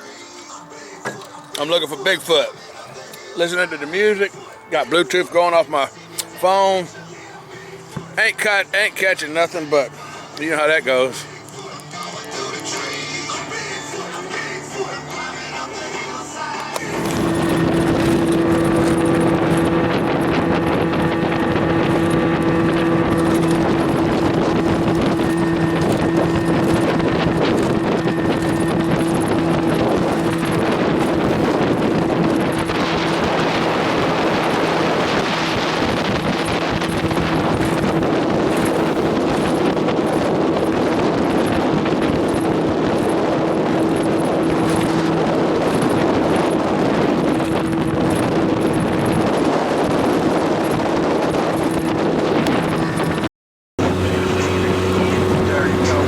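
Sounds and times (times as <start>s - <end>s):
outboard motor running: 1.0s - 56.0s
wind on microphone: 16.8s - 56.0s.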